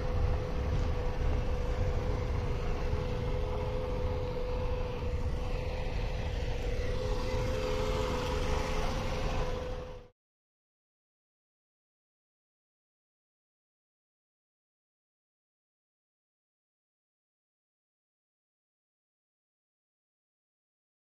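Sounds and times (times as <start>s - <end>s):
freight train rumble: 0.0s - 10.1s
steady droning tone: 0.0s - 10.2s.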